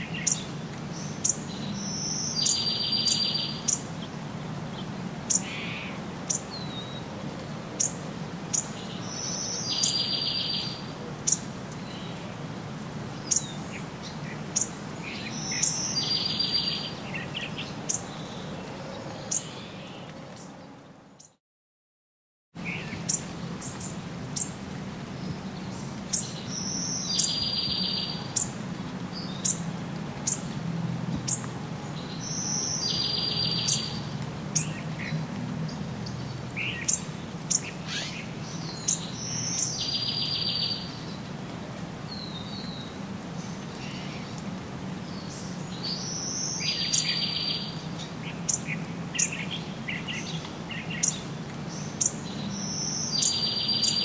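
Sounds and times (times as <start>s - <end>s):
bird song with buzzy trill: 0.2s - 3.9s, 7.8s - 12.0s, 14.6s - 18.0s, 26.1s - 28.5s, 36.6s - 41.0s, 48.5s - 54.0s.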